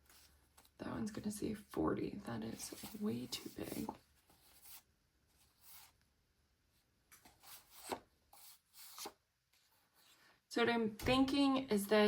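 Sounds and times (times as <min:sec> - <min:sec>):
paper pages turning: 0:02.4 - 0:06.0, 0:07.1 - 0:10.1.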